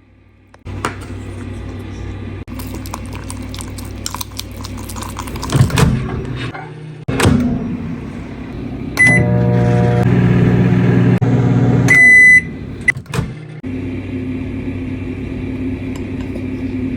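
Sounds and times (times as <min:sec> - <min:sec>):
microwave humming: 0:04.6 - 0:16.9
steady hum: 0:06.2 - 0:16.9
microwave beeps: 0:09.0 - 0:10.1, 0:11.8 - 0:13.0.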